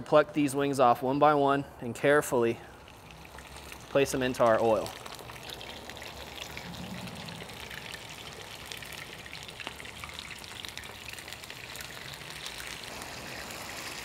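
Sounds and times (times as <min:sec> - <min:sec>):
chicken wings sizzling in oil: 0:07.5 - 0:14.0.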